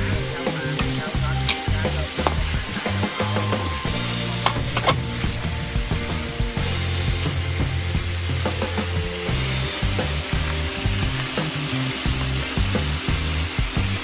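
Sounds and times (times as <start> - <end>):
meat sizzling in a wok: 0.0 - 14.0
utensil clicking against pan: 4.4 - 5.0.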